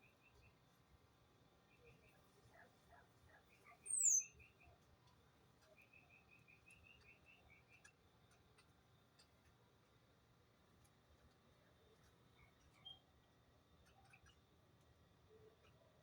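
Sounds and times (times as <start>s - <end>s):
small birds chirping: 3.6s - 4.6s
faint ticks: 6.7s - 10.0s, 13.8s - 15.0s.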